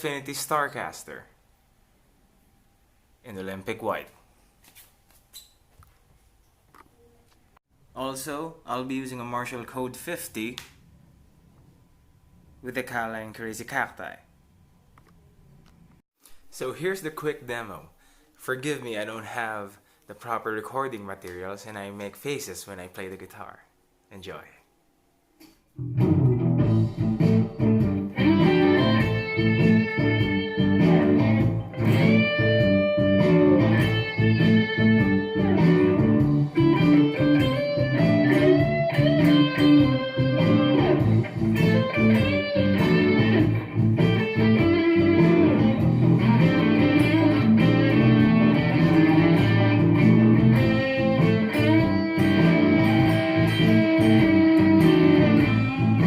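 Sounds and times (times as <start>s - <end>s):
overdriven electric guitar blues licks: 25.8s - 56.0s.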